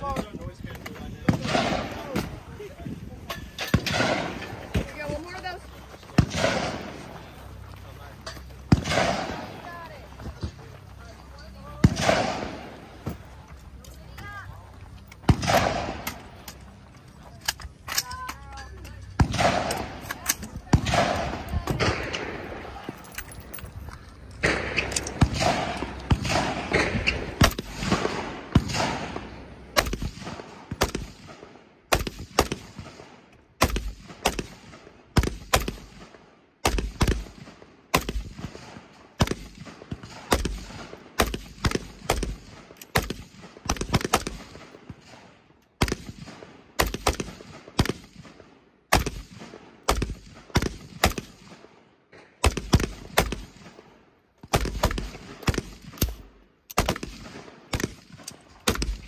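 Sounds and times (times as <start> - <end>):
gunshots with echo: 1.3 - 2.3, 3.6 - 4.8, 6.2 - 7.3, 8.6 - 9.7, 11.8 - 13.1, 15.3 - 16.2, 19.2 - 20.0, 20.8 - 22.8, 24.4 - 44.7.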